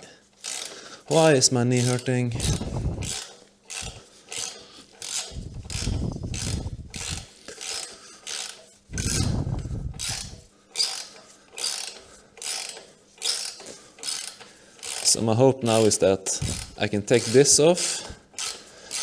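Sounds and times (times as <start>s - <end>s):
socket ratchet clicking: 1.8s - 15.1s, 15.8s - 19.0s
low rumble of handling noise: 2.3s - 3.2s, 5.3s - 7.3s, 8.9s - 10.5s.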